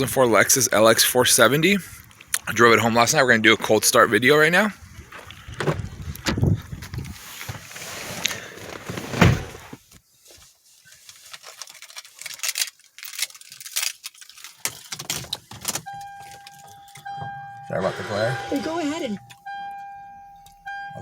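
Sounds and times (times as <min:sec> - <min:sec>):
heavy thud: 0:08.7 - 0:09.8.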